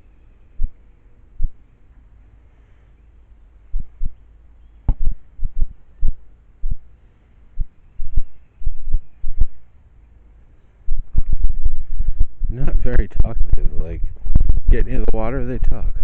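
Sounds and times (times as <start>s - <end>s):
low thumps: 3.7s - 4.2s, 4.9s - 6.9s, 7.6s - 9.6s, 10.9s - 16.0s.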